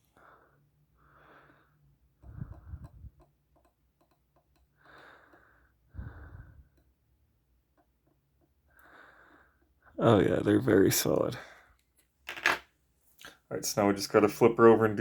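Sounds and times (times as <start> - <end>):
person breathing close to microphone: 0.1 - 3.2, 4.7 - 6.9, 8.7 - 10.0.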